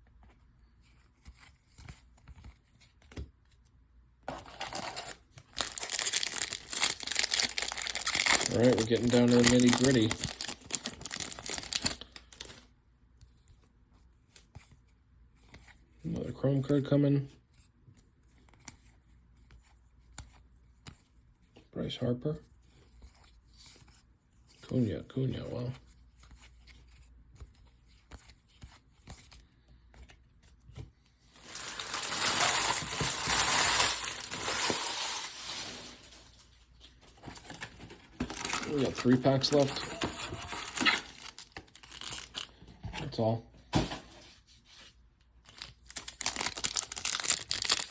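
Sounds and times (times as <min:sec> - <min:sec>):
cards clicking and rustling: 0:04.3 - 0:12.6, 0:36.8 - 0:42.6, 0:45.5 - 0:47.9
wrapper tearing and crinkling: 0:04.5 - 0:12.6, 0:31.4 - 0:36.5, 0:38.2 - 0:42.5, 0:45.5 - 0:47.9.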